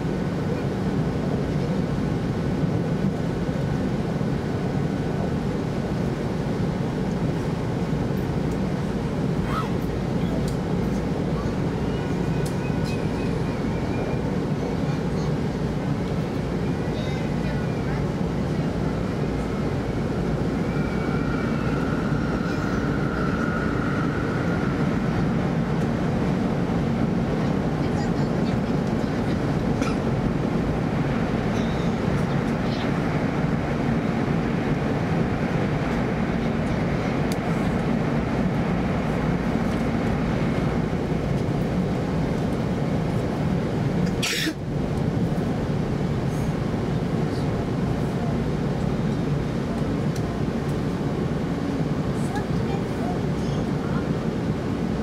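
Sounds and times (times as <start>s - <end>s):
air rushing around train: 0.0s - 55.0s
train wheels rumbling on rails: 0.0s - 55.0s.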